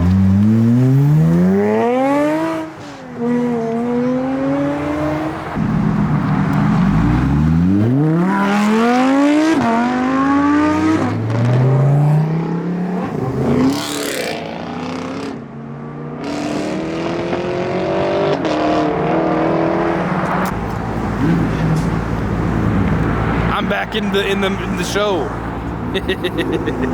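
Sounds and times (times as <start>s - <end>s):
car engine accelerating: 0.0s - 15.3s.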